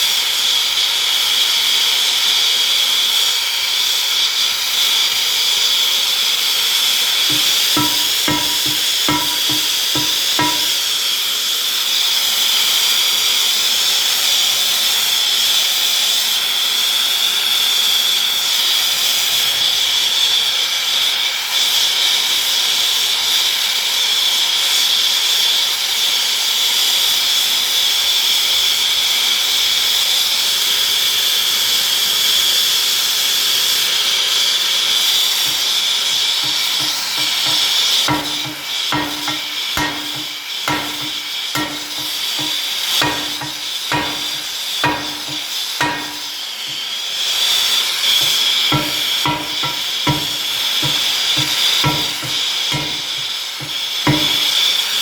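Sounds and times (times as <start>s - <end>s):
short ringing knocks: 7.3s - 10.8s, 36.4s - 46.8s, 48.2s - 54.6s.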